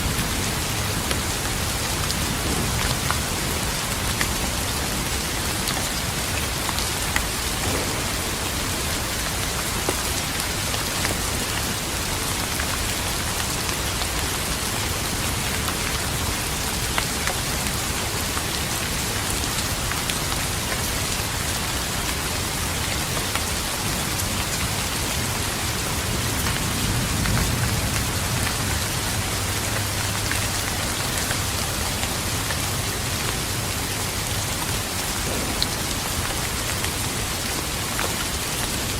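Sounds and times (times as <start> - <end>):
steady rain falling: 0.0 - 38.9
distant thunder rumble: 1.5 - 4.6, 7.3 - 9.9, 35.2 - 37.8.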